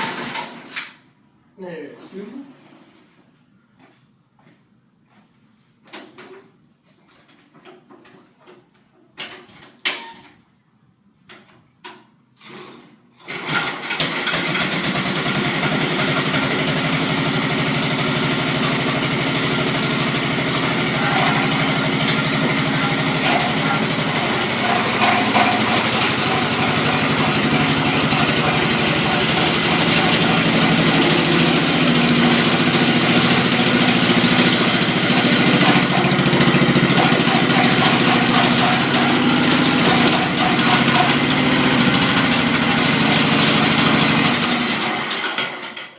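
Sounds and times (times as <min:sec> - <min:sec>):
tractor engine starting and running: 0:13.3 - 0:45.9.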